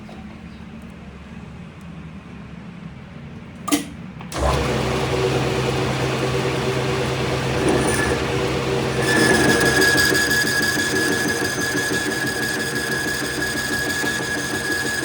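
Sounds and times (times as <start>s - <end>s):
machine motor humming: 4.3s - 15.0s.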